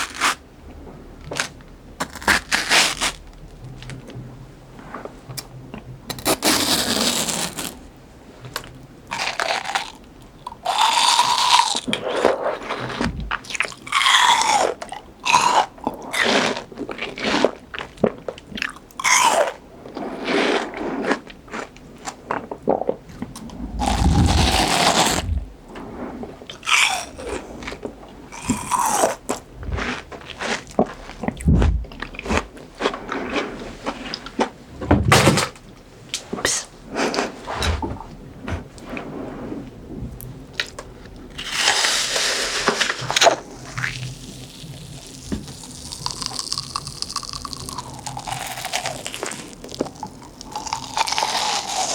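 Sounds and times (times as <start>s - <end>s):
crunchy fruit chewing: 1.3s - 3.3s, 9.1s - 19.6s, 20.2s - 25.6s, 26.5s - 34.6s, 42.8s - 51.9s.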